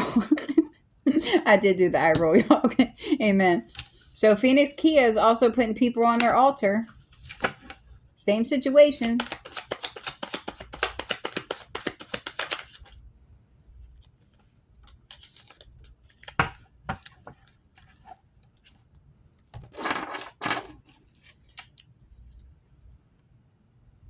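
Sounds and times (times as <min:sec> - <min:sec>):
cards riffling: 0:09.0 - 0:13.0, 0:14.2 - 0:18.0
cards snapping and slapping: 0:09.0 - 0:13.0.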